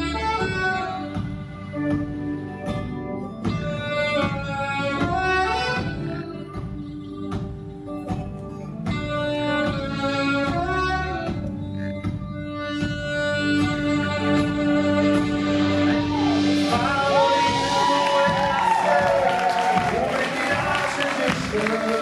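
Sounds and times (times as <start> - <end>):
live band playing: 0.0 - 22.0
drum hits: 16.1 - 21.8.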